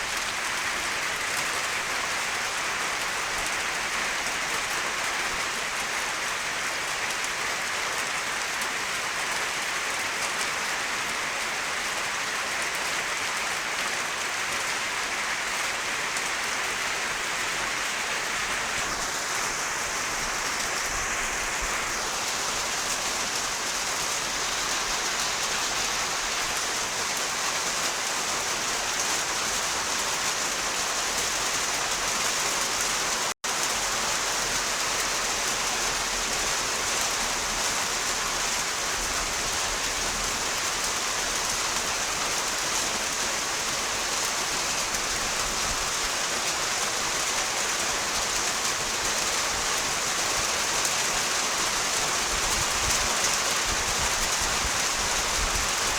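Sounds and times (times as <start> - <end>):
rain pattering on surfaces: 0.0 - 55.9.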